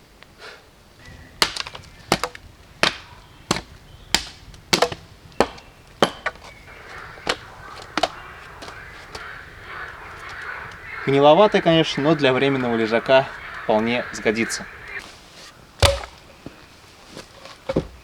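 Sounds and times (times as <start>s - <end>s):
blade chopping wood: 1.4s - 6.6s, 15.8s - 16.3s.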